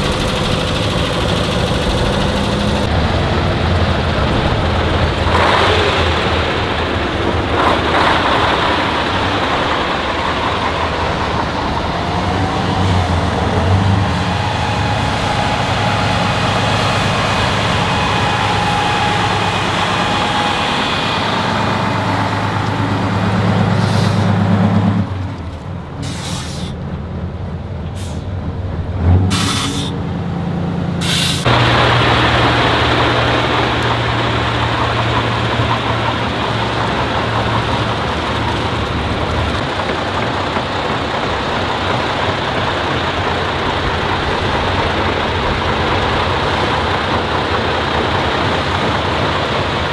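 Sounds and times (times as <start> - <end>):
heavy truck engines running: 0.0 - 49.9
air brake hisses: 23.8 - 24.6, 26.0 - 26.8, 27.9 - 28.3, 29.3 - 30.0, 31.0 - 31.5.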